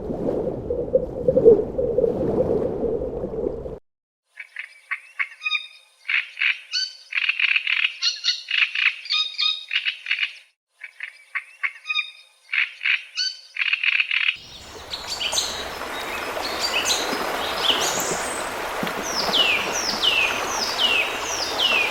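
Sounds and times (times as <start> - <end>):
birds chirping in falling notes: 14.4 - 21.9.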